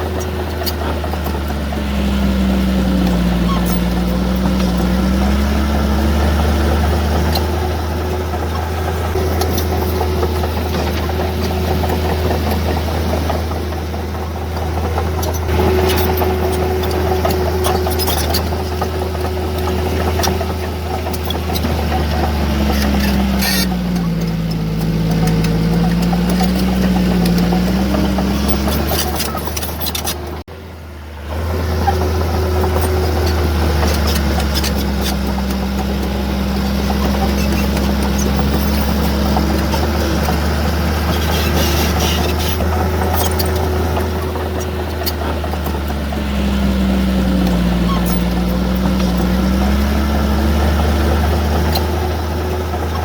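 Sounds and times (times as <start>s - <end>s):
diesel engine droning: 0.0s - 53.0s
metallic clanks: 8.3s - 14.0s.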